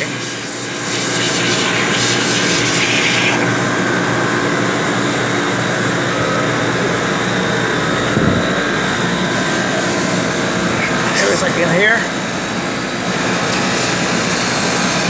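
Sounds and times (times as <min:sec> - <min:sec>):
hiss: 0:00.0 - 0:03.4
engine-room machinery droning: 0:00.0 - 0:15.0.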